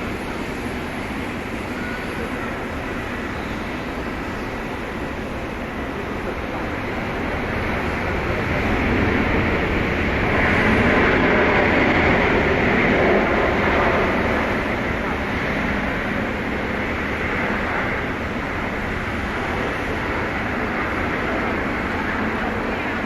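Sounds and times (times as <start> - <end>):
jet airliner engines passing: 0.0 - 23.0.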